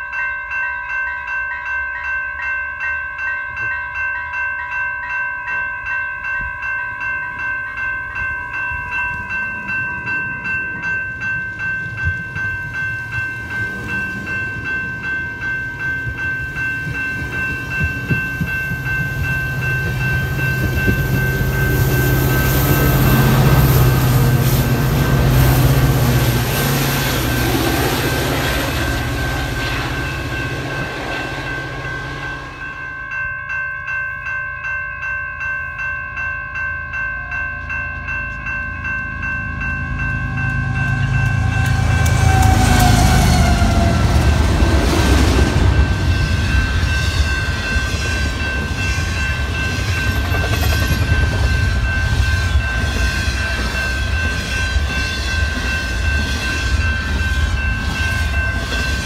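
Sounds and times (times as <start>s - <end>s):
crossing bell ringing: 0.0s - 59.0s
diesel locomotive engine drone: 7.3s - 33.3s, 36.9s - 59.0s
train wheels clacking on rails: 8.1s - 33.0s, 39.2s - 59.0s.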